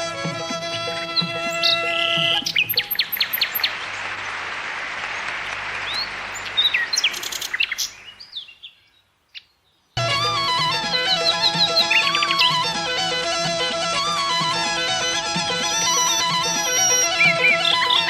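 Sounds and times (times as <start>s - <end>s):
birds chirping: 0.0s - 18.0s
outdoor ambience hiss: 0.0s - 18.0s
relaxing background music: 10.0s - 18.0s.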